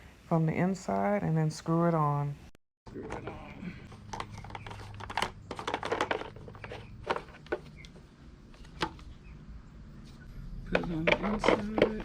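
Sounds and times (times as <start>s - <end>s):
plastic parts clicking and rattling: 3.9s - 9.0s.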